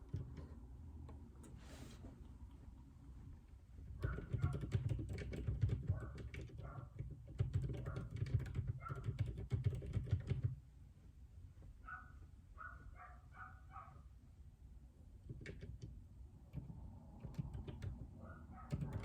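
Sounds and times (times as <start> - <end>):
mechanical keyboard typing: 4.0 - 10.6, 15.2 - 19.0.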